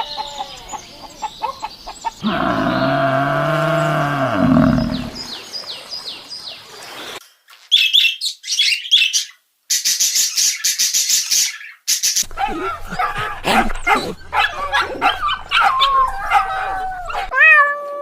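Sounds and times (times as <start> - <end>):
birds chirping: 0.0 - 7.1, 10.1 - 17.4
long pitched animal call: 2.2 - 5.3, 12.2 - 17.6.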